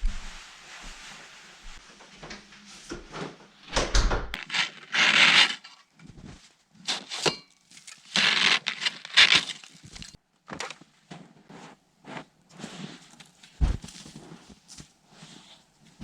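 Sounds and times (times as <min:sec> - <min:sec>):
scraping rubbing and cracking: 0:04.4 - 0:10.8.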